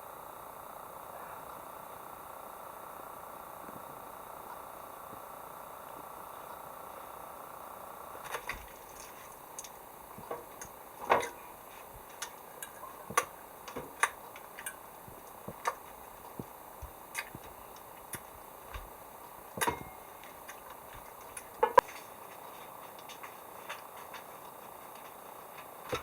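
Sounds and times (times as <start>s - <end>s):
faint steady background noise: 0.0s - 26.0s
sharp clicks and pops: 8.2s - 26.0s.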